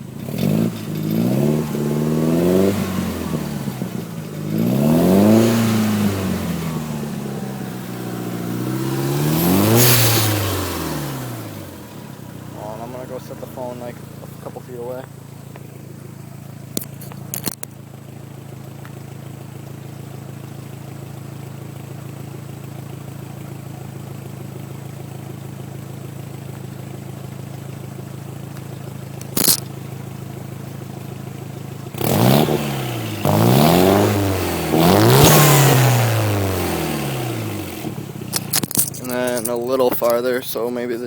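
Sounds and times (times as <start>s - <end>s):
car engine idling and revving: 0.0s - 41.0s
sharp clicks: 38.3s - 40.2s.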